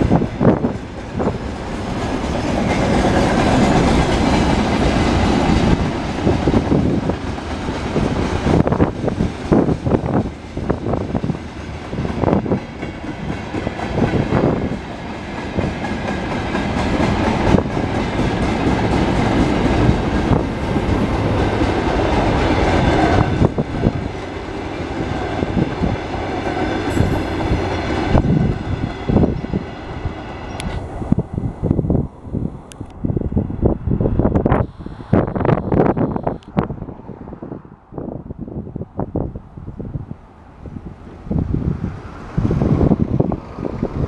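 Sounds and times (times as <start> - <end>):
wheels clacking over rail joints: 0.0 - 30.8
freight train wagons rumbling: 0.0 - 34.6.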